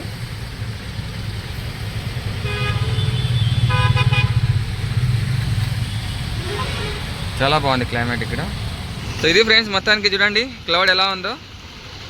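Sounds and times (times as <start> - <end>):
passing traffic rumble: 0.0 - 12.0
vehicle horn honking: 2.4 - 8.4.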